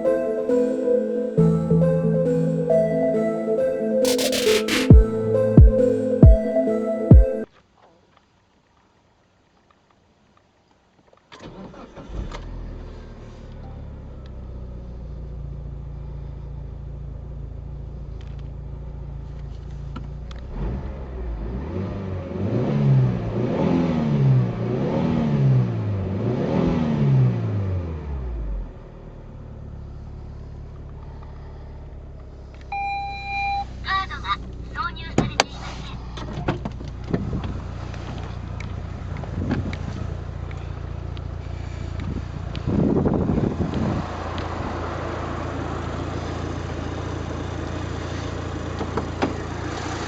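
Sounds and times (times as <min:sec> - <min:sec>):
car engine starting: 0:11.3 - 0:50.0
car engine idling and revving: 0:11.4 - 0:50.0.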